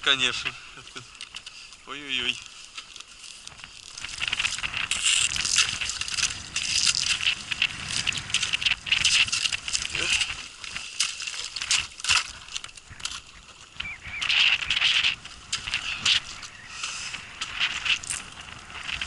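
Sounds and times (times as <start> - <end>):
ice cracking against boat hull: 3.4 - 16.5.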